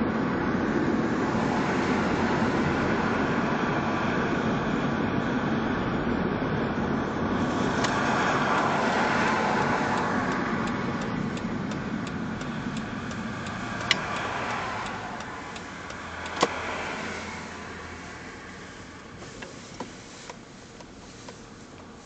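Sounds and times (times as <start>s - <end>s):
road traffic passing: 0.0s - 22.0s
steady ticking: 9.6s - 16.8s
sharp click: 13.5s - 16.6s.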